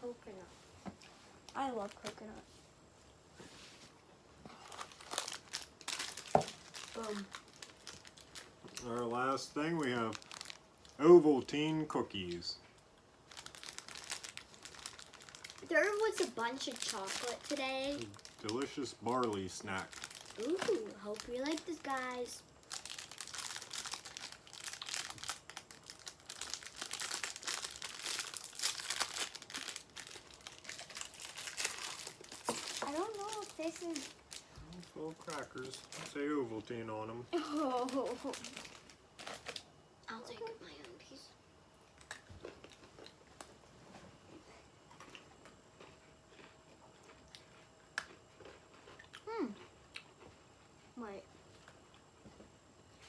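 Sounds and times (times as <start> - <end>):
crackers being eaten: 4.5 - 11.0, 12.2 - 36.2, 37.4 - 39.7, 41.8 - 43.6, 44.9 - 50.4
plastic wrapper crinkling: 4.6 - 11.0, 13.2 - 36.2, 37.4 - 39.7.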